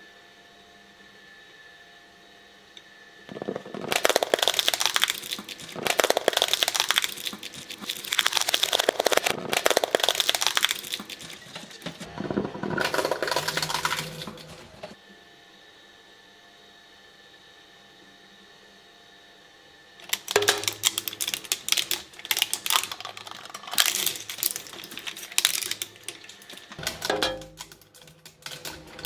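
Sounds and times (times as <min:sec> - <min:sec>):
shredder crunching: 0:03.3 - 0:15.0, 0:20.0 - 0:29.0.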